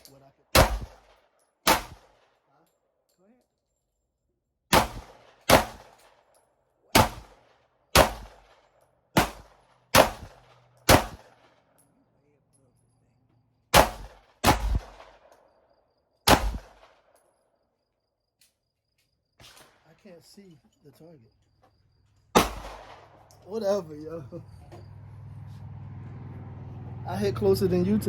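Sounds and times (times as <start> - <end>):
pistol shots with echo: 0.5 - 2.2, 4.7 - 6.0, 6.9 - 8.6, 9.2 - 11.5, 13.7 - 15.3, 16.3 - 17.1, 22.3 - 23.3.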